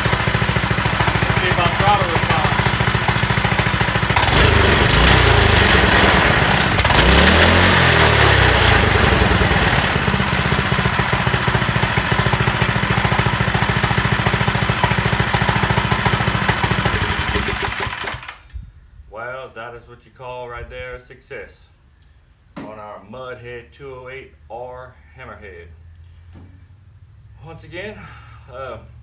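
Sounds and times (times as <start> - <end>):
go-kart engine revving and idling: 0.0 - 18.4.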